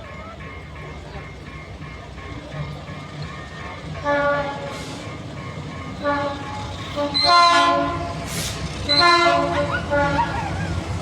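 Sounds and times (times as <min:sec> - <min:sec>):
passing train running noise: 0:00.0 - 0:11.0
locomotive horn blasts: 0:04.0 - 0:05.0, 0:06.0 - 0:10.4.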